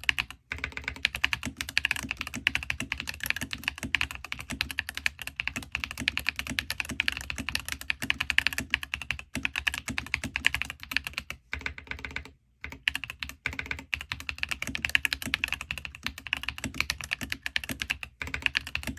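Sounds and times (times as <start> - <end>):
fast typing on mechanical keyboard: 0.0 - 18.9.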